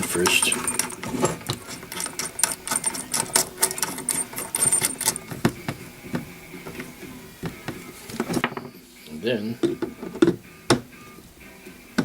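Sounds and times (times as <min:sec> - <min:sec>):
small metal parts clicking: 0:00.0 - 0:05.4
knocks: 0:09.6 - 0:11.0.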